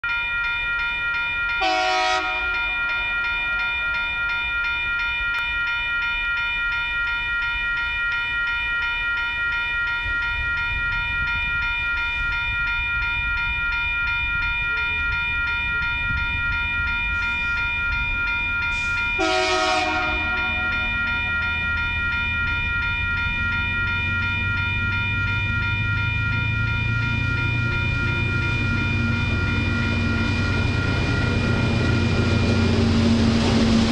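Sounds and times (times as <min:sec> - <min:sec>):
level crossing bells ringing: 0:00.0 - 0:33.9
diesel locomotive horn blasts: 0:01.6 - 0:03.5, 0:18.8 - 0:21.2.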